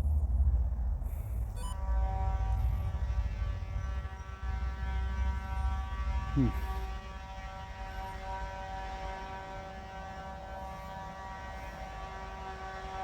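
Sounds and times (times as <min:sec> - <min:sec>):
loud droning hum: 0:00.0 - 0:13.0.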